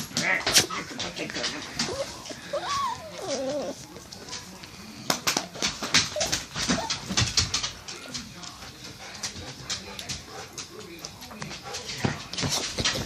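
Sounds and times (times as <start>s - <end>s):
dog whining: 1.6s - 4.0s, 6.0s - 7.2s.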